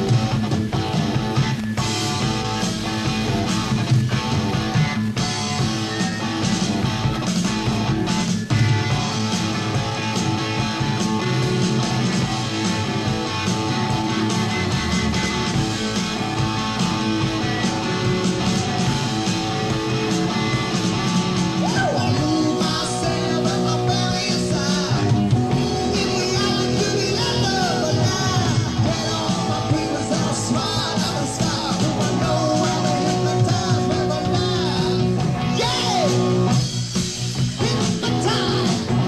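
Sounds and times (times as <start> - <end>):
rock band playing: 0.0 - 39.0
person singing: 21.6 - 36.3, 37.6 - 39.0.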